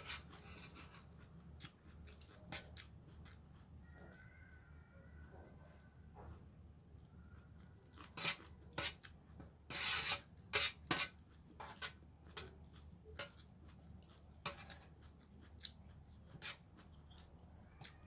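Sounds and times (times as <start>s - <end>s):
utensil scraping and clicking on bowl: 8.0s - 13.4s, 14.4s - 14.9s, 16.3s - 17.2s.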